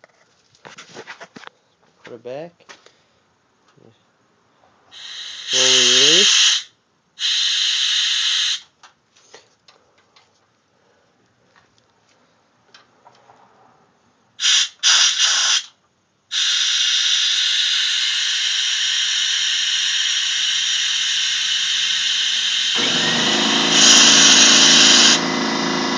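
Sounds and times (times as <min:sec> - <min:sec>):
air hissing: 0:04.9 - 0:08.7, 0:14.4 - 0:25.9
compressed air blasts: 0:04.9 - 0:08.7, 0:14.4 - 0:25.9
motor running: 0:05.0 - 0:06.4, 0:18.0 - 0:25.9.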